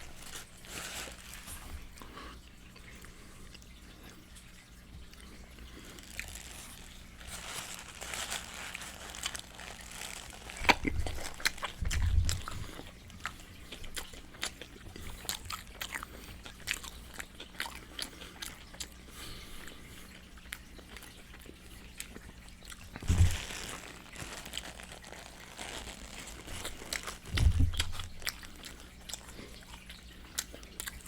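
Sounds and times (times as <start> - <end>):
crunchy bites and chewing: 5.2 - 19.0, 20.8 - 31.0
wet mouth clicks and smacking: 10.6 - 19.0, 26.6 - 31.0
deep thumps: 23.0 - 23.6.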